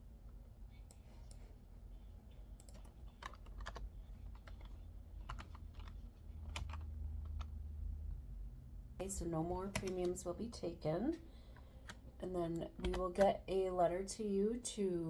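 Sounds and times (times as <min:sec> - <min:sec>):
steady low hum: 0:00.0 - 0:15.0
computer keyboard typing: 0:02.6 - 0:07.6, 0:09.6 - 0:10.3, 0:11.8 - 0:13.4.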